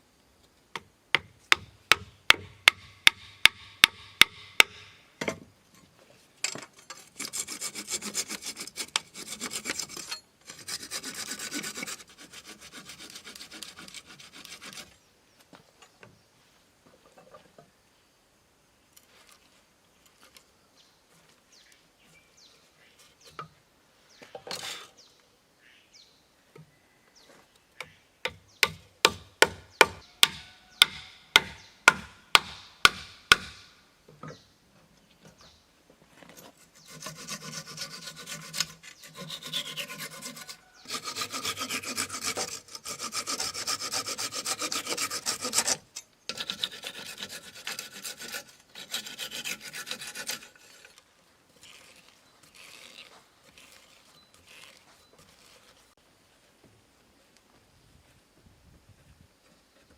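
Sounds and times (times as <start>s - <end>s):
sharp blows on wood: 1.2s - 5.1s, 27.8s - 33.8s
hand saw rasping through wood: 7.0s - 14.9s, 28.6s - 33.7s, 36.5s - 51.0s.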